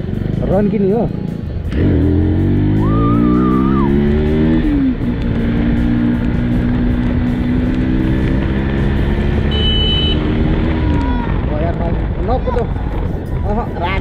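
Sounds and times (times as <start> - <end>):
motorcycle engine accelerating: 0.0 - 13.5.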